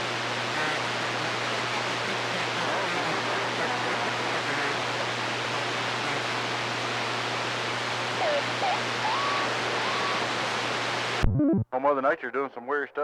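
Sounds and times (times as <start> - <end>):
low steady hum: 0.0 - 12.0
radio static hiss: 0.0 - 13.0
wavering radio whistles: 8.2 - 10.6.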